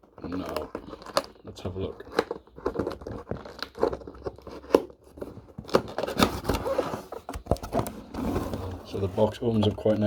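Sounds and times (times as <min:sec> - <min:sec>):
cardboard box being opened: 0:02.1 - 0:09.9.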